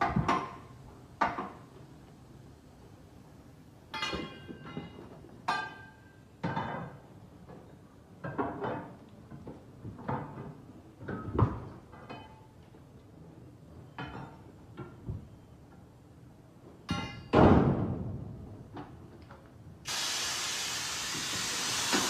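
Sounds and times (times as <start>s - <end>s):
metal objects clanking and knocking: 3.9s - 7.0s.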